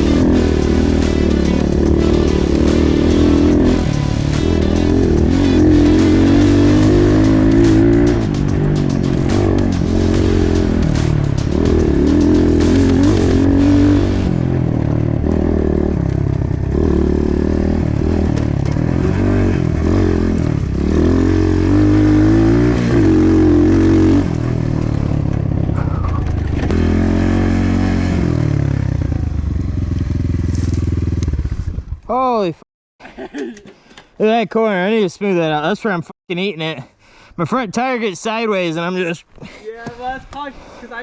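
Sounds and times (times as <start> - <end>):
engine revving: 0.0 - 31.4.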